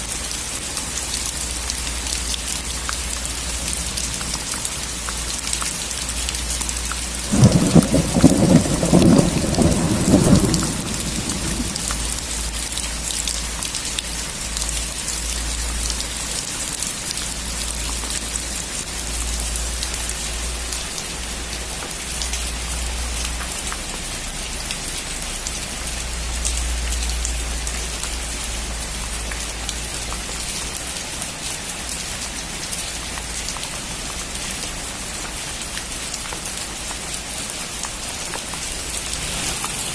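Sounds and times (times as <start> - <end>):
steady rain falling: 0.0 - 39.9
thunderclap rumbling: 7.3 - 12.2.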